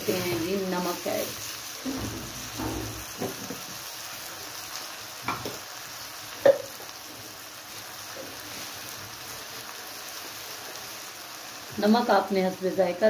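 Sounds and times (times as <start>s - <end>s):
curry sizzling in a pot: 0.0s - 13.0s.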